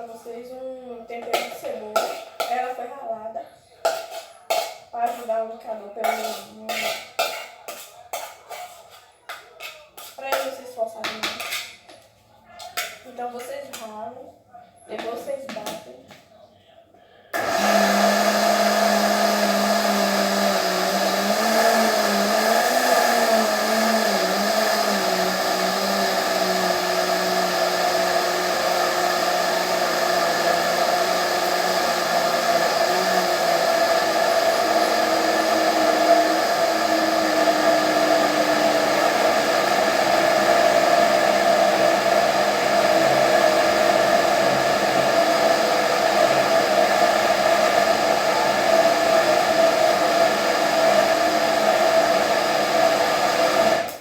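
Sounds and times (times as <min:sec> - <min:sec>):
blender motor running: 0:17.4 - 0:54.0.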